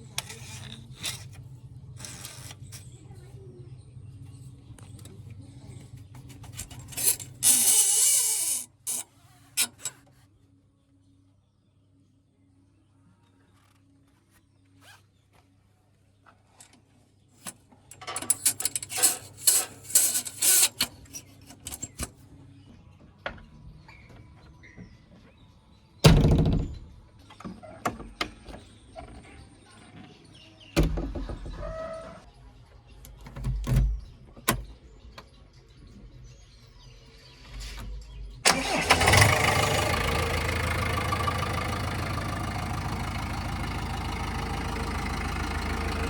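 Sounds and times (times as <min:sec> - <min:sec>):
door and latch clatter: 0:26.0 - 0:28.6.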